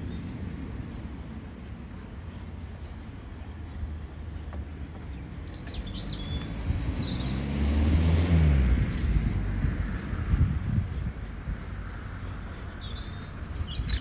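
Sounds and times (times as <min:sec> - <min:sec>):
train rumbling past: 0:00.0 - 0:11.8
small birds chirping: 0:12.0 - 0:14.0.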